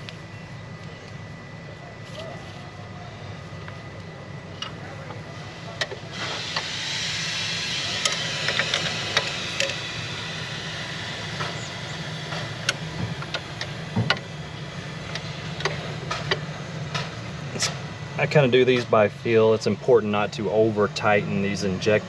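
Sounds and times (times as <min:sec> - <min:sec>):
steady low hum: 0:00.0 - 0:22.0
hiss: 0:05.4 - 0:13.9.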